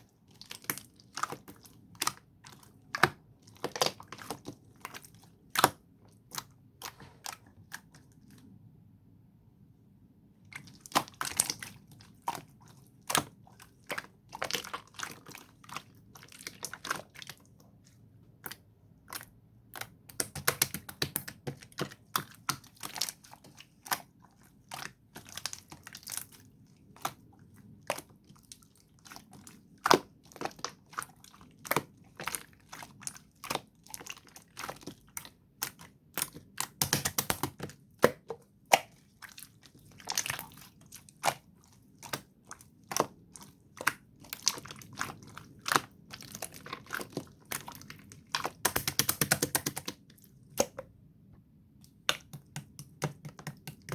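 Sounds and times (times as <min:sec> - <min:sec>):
slime squeezed clicking and popping: 0:36.2 - 0:38.9, 0:48.5 - 0:50.0.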